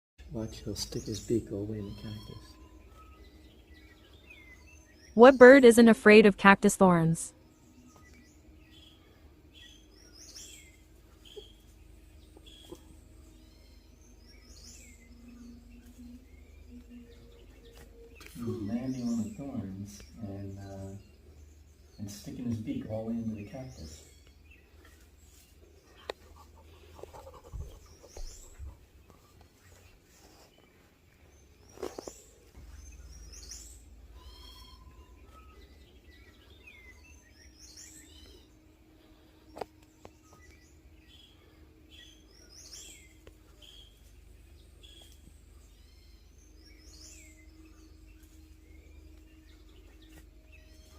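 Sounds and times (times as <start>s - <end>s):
low steady hum: 0.2s - 50.9s
faint small bird chirps: 0.3s - 5.2s, 9.6s - 21.2s, 31.7s - 50.9s.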